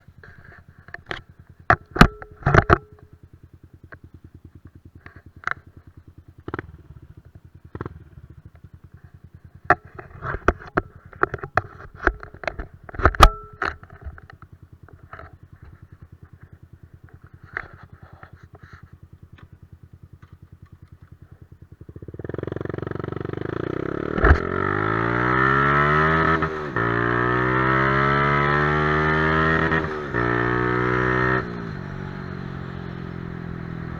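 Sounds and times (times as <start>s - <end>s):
motorcycle engine idling: 0.0s - 33.9s
motorcycle engine revving: 0.0s - 33.9s
sharp clicks and knocks: 0.2s - 3.1s, 9.6s - 19.6s, 23.5s - 25.2s.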